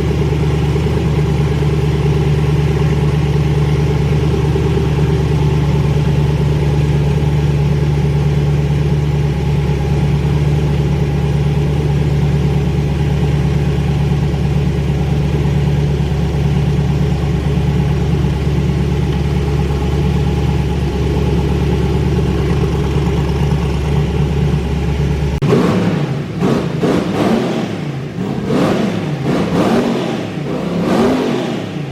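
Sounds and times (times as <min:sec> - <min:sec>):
car engine idling: 0:00.0 - 0:31.9
engine revving: 0:24.9 - 0:31.9.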